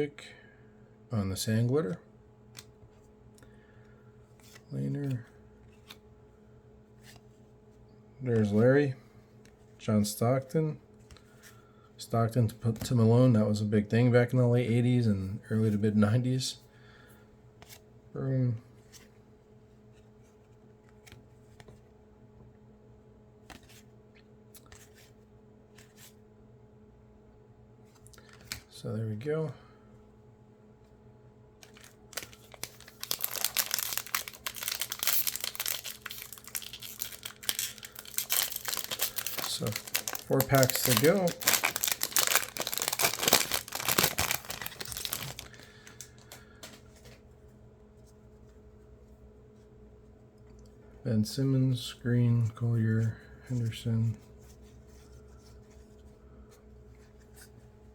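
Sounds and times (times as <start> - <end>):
low room hum: 0.0 - 57.9
foil wrapper crinkling and tearing: 31.6 - 46.4
cards clicking and rustling: 31.6 - 47.2.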